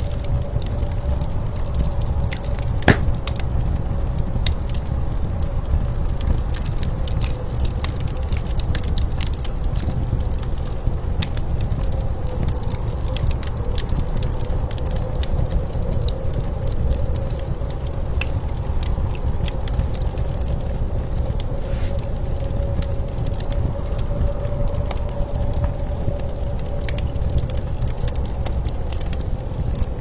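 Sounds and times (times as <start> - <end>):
wood fire crackling and popping: 2.4 - 4.0, 26.0 - 30.0
howling blizzard wind: 12.8 - 30.0.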